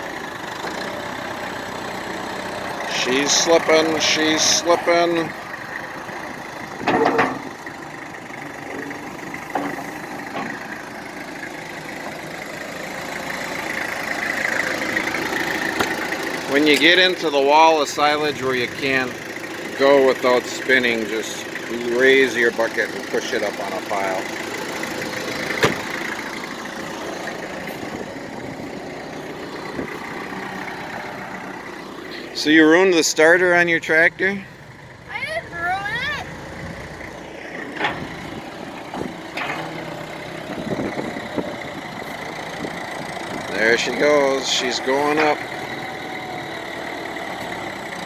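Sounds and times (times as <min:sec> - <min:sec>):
tractor engine running: 0:00.0 - 0:48.0
small knocks: 0:15.7 - 0:16.0.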